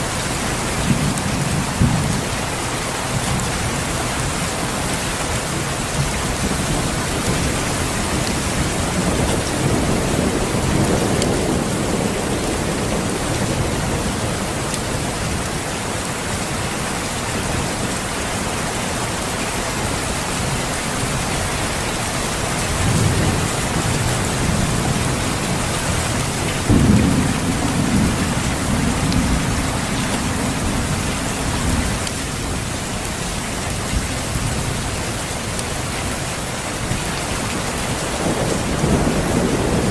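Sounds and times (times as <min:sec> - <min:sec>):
steady rain: 0:00.0 - 0:39.9
thunder rumbling: 0:06.0 - 0:15.6, 0:22.5 - 0:35.1, 0:37.8 - 0:39.9.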